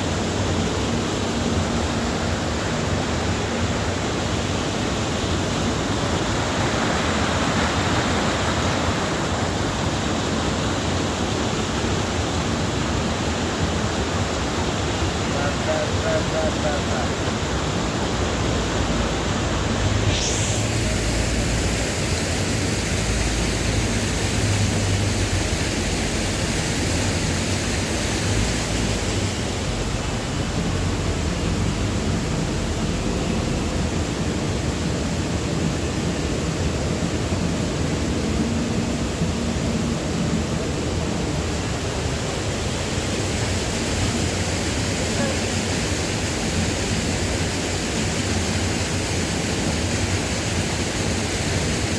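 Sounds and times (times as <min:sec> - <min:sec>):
waterfall roar: 0:00.0 - 0:51.9.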